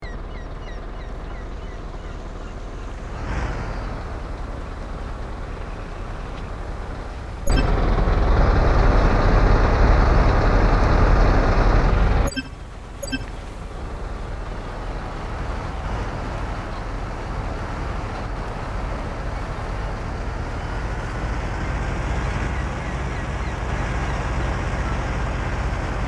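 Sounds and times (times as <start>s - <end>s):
truck engine rumbling: 0.0s - 26.0s.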